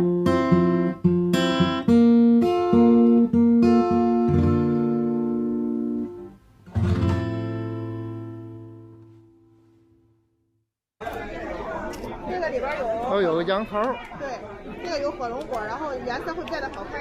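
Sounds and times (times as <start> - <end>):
acoustic guitar melody: 0.0 - 10.2.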